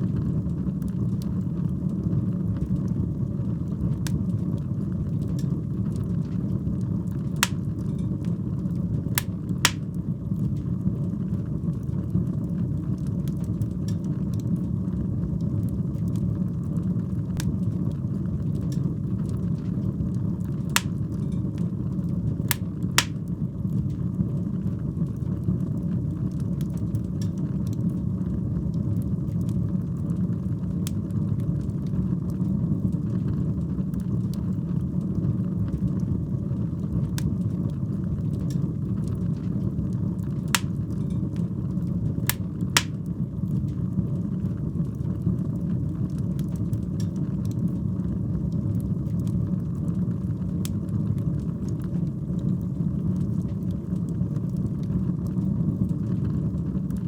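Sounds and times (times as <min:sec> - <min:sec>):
crackling fire: 0:00.0 - 0:57.0
fire burning in a fireplace: 0:00.0 - 0:57.0
sharp wood pops: 0:07.4 - 0:07.6, 0:09.2 - 0:09.8, 0:20.8 - 0:21.0, 0:22.5 - 0:23.2, 0:40.6 - 0:40.8, 0:42.3 - 0:43.0.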